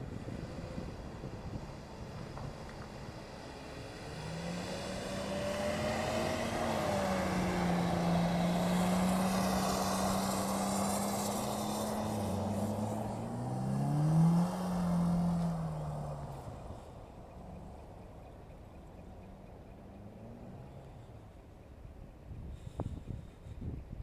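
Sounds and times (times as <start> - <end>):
car engine revving: 0.3 - 21.4.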